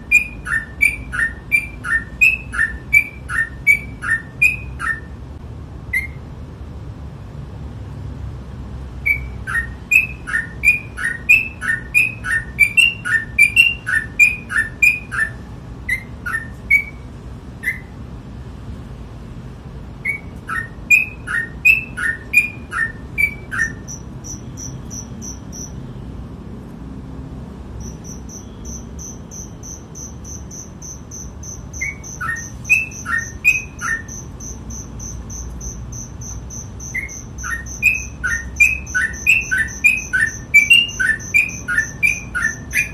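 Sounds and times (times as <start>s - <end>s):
high fast-pulsing chirp: 0.0s - 5.2s, 9.1s - 17.0s, 20.0s - 25.8s, 27.8s - 42.9s.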